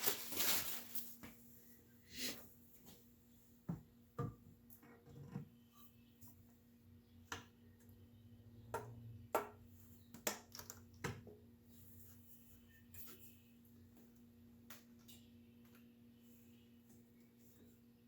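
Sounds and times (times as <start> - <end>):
faint steady hum: 10.9 - 18.0.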